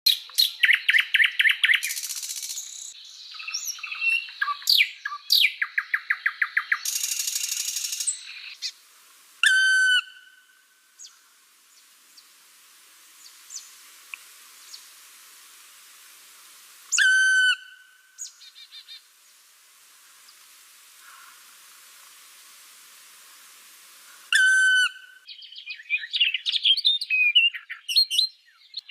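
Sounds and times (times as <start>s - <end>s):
loud whistled bird calls: 0.1s - 8.7s, 9.4s - 11.2s, 16.9s - 19.0s, 24.3s - 28.9s.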